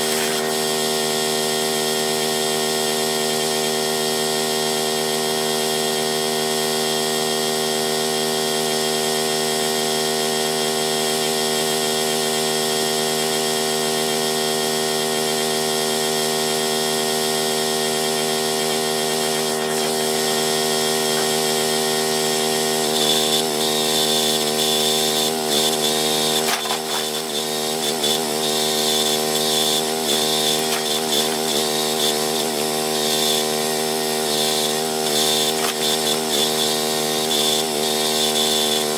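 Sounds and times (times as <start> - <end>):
small gasoline engine running: 0.0 - 38.9
engine whine: 18.5 - 32.7.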